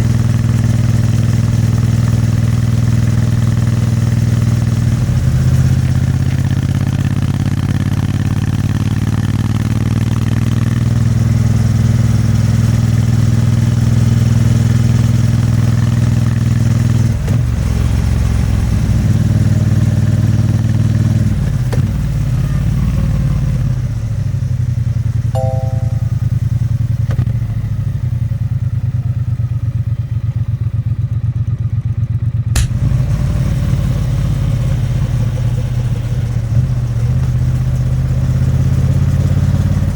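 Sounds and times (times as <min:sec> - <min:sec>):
short beep: 0:25.4 - 0:26.4
sharp click: 0:32.6 - 0:32.8.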